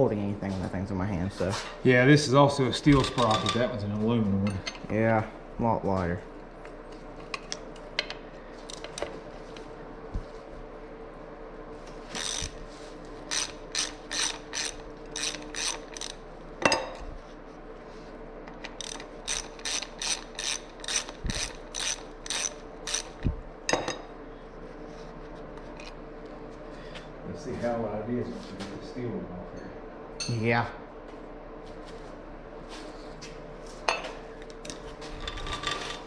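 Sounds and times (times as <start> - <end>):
ratchet wrench clicking: 12.2 - 12.6, 13.3 - 16.2, 18.8 - 23.2.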